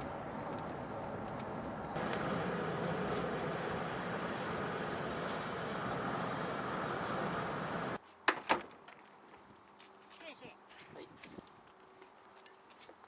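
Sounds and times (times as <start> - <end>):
vehicle running close by: 0.0 - 8.0.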